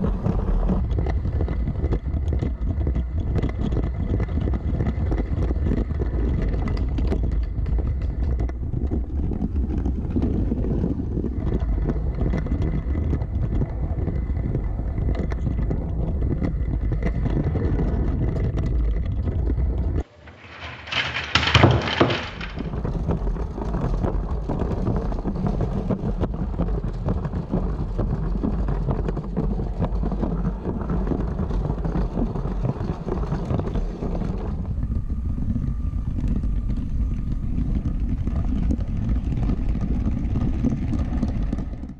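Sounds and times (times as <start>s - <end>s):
toy train rattling on plastic track: 20.0s - 24.0s
faint motor whine: 28.8s - 41.2s.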